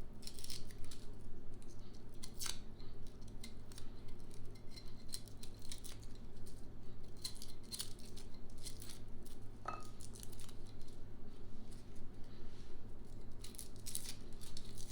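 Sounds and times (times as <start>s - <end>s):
small ringing clink: 9.7s - 9.9s.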